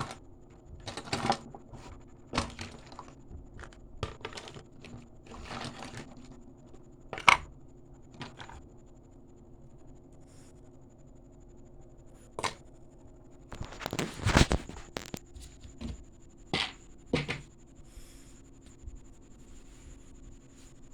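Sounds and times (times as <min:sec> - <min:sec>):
clicks and rustles of handling: 0:00.0 - 0:08.7, 0:13.5 - 0:17.5.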